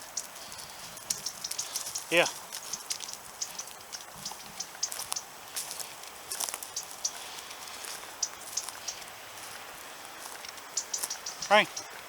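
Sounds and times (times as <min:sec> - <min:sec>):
dry grass and twigs crackling: 0:00.0 - 0:12.0.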